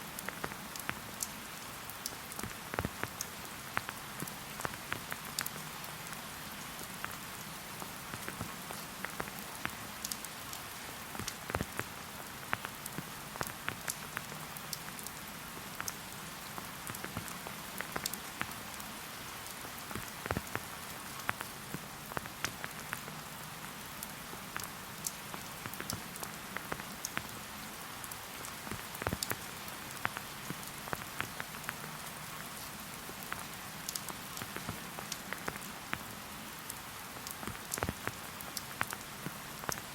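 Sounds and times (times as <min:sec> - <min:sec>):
steady rain: 0:00.0 - 0:39.9
raindrops tapping close by: 0:00.1 - 0:39.9.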